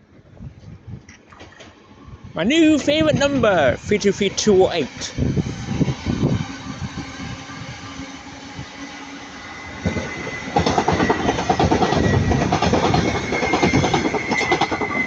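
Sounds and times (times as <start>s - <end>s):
steady high whine: 0.5s - 12.3s
train rumbling: 1.6s - 15.0s
wheels clattering over rail joints: 9.9s - 15.0s.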